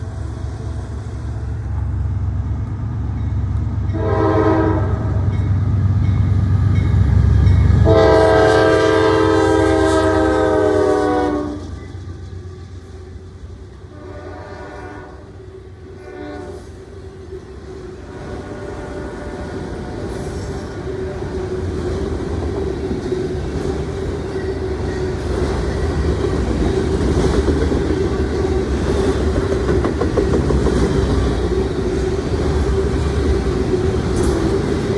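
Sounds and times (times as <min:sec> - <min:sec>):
diesel locomotive engine rumble: 0:00.0 - 0:34.9
train cars rolling by: 0:00.0 - 0:34.9
train horn blasts: 0:03.9 - 0:05.5, 0:07.8 - 0:11.9, 0:13.8 - 0:16.8, 0:18.0 - 0:21.4.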